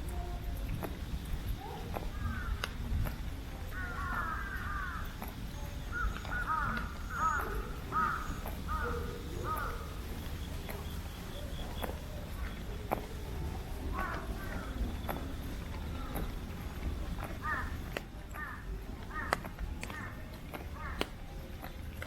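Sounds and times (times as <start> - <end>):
crow cawing: 2.1 - 2.6, 3.7 - 5.2, 5.9 - 10.0, 17.4 - 17.8, 18.4 - 20.1, 20.8 - 21.0.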